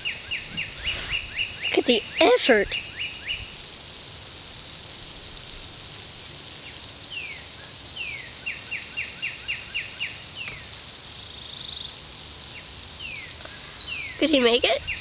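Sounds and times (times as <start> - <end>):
songbird whistling: 0.0 - 3.6, 6.9 - 10.7, 12.8 - 15.0
steady outdoor hiss: 0.0 - 15.0.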